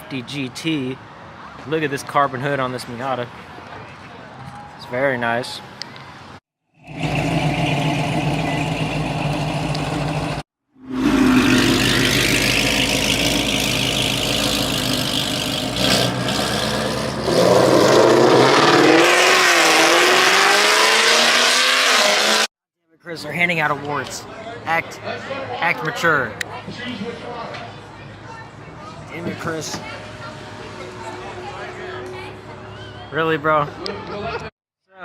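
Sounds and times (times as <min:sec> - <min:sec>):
car engines revving: 0:06.8 - 0:22.5.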